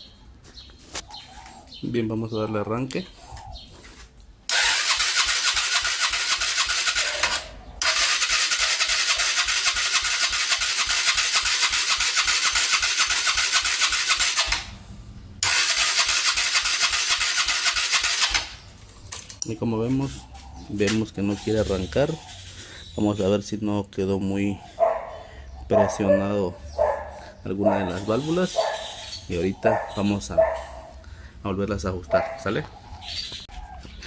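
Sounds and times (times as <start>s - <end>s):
motorcycle starter cranking: 4.5s - 19.4s.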